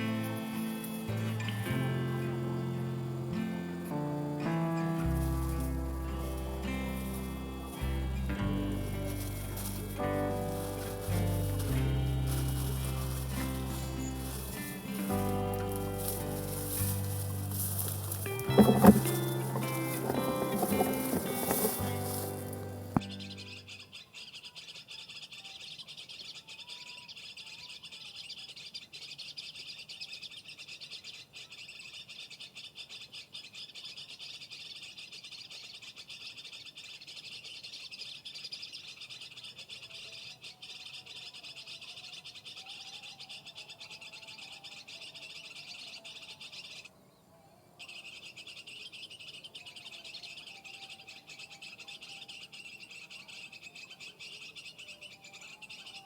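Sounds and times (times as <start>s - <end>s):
high-pitched bird chirping: 0.0s - 25.4s
low warbling bird calls: 0.0s - 56.0s.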